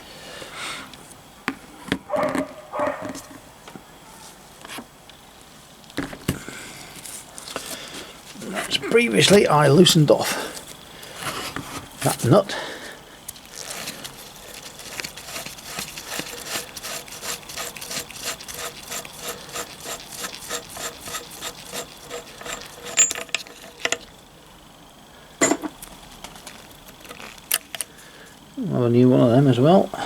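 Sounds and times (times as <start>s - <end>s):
hand tool rasping on a nut: 13.3s - 24.1s.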